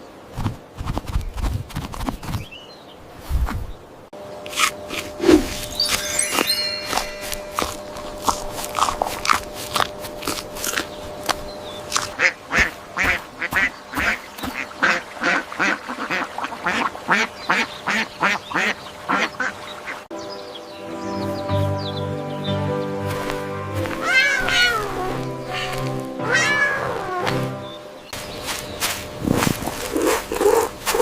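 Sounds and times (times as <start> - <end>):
ducks quacking: 11.3 - 20.0, 23.8 - 27.6.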